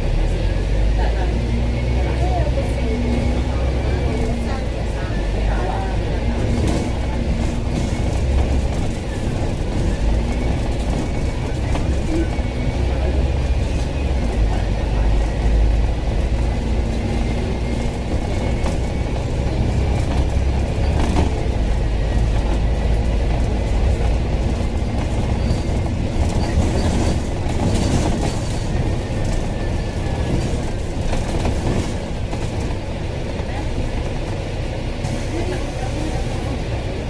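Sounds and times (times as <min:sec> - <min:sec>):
bus engine and road rumble: 0:00.0 - 0:37.0
clicks and rattles from bus body: 0:06.1 - 0:15.5, 0:16.1 - 0:35.8.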